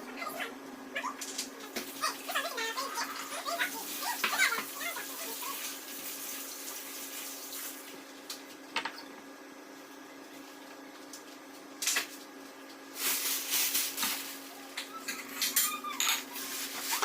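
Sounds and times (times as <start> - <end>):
water running and splashing: 1.6 - 8.5.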